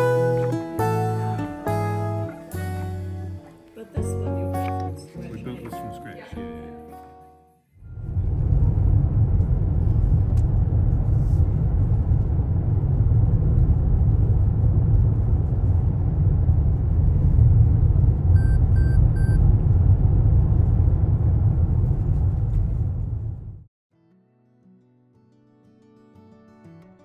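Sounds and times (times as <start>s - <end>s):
loud low rumble: 7.8s - 23.7s
short electronic beeps: 18.4s - 19.4s.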